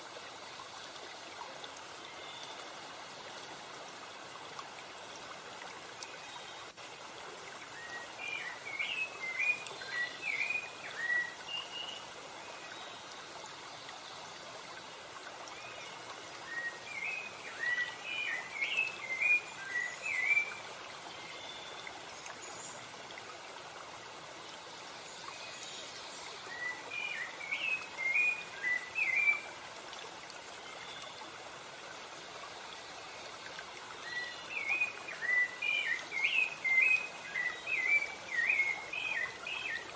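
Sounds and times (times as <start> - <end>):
stream rushing: 0.0 - 12.6, 13.3 - 39.9
songbird chirping: 34.0 - 39.9.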